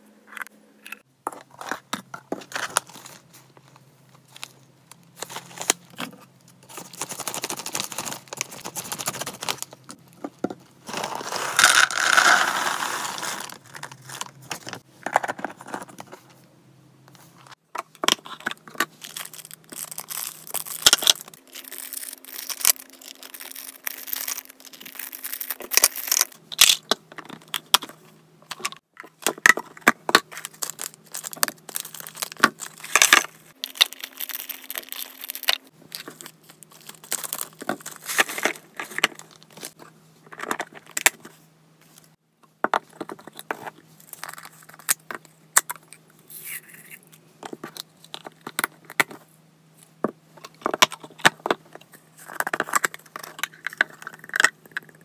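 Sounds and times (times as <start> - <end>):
faint steady hum: 0.0 - 55.0
rustling and clicking of handled items: 0.3 - 12.3.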